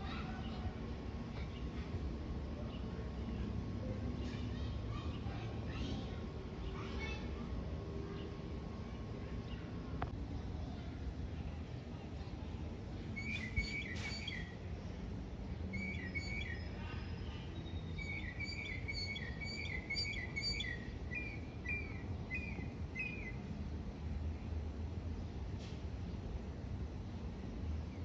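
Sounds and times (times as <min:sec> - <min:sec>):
songbird chirping: 0:13.1 - 0:14.6, 0:15.7 - 0:23.5.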